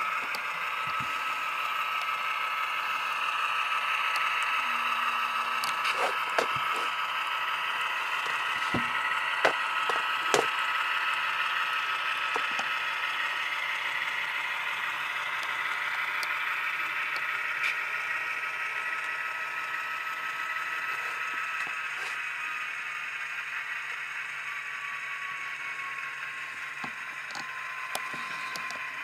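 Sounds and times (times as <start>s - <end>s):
diesel idling through small speaker: 0.0s - 29.0s
sharp clicks and ticks: 0.2s - 4.5s, 5.5s - 7.0s, 8.1s - 17.8s.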